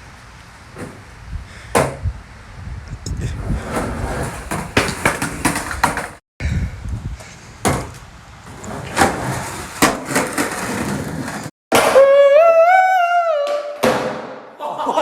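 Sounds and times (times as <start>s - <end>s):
skateboard wheels rolling: 3.3s - 6.2s, 7.2s - 11.5s
skateboard clacking on ground: 3.7s - 6.2s, 8.8s - 12.0s.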